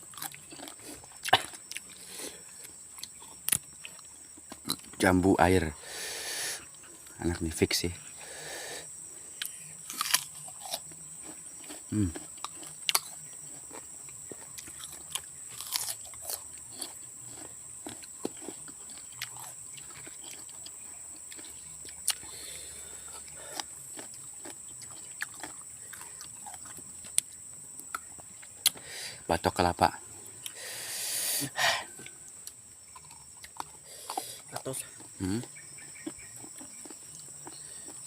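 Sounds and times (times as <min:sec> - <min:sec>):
crunchy chewing: 0:00.0 - 0:38.0.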